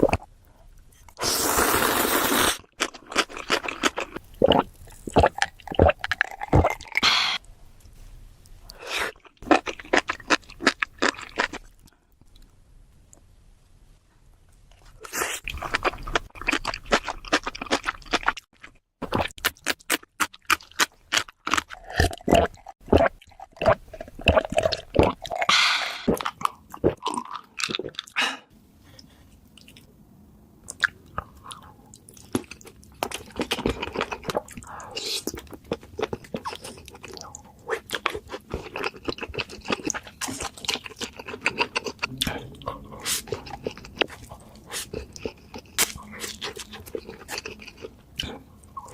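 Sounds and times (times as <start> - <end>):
crunching and chewing crisp food: 2.6 - 7.0, 8.7 - 12.5, 14.8 - 25.5, 30.7 - 48.9.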